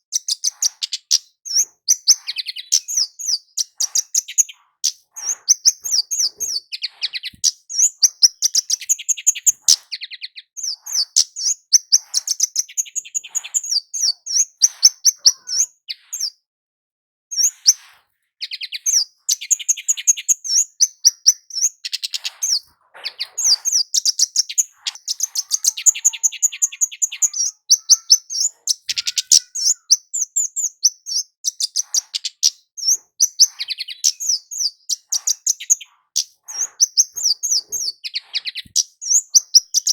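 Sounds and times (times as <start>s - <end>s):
bird chirps and trills: 0.0s - 16.4s, 17.3s - 39.9s.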